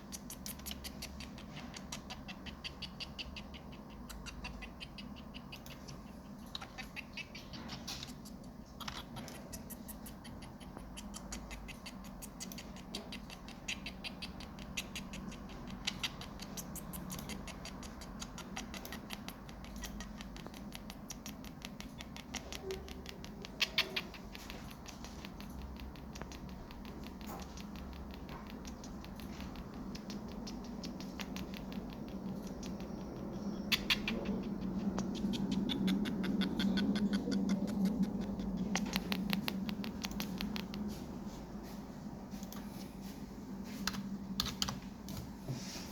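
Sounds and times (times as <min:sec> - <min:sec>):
steady low hum: 0:00.0 - 0:45.9
headphones clicking and crackling: 0:34.9 - 0:40.9.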